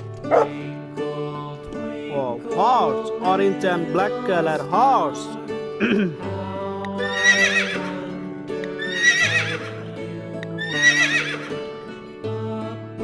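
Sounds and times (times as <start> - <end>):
horse whinnying: 0.0 - 0.6
background music: 0.0 - 13.0.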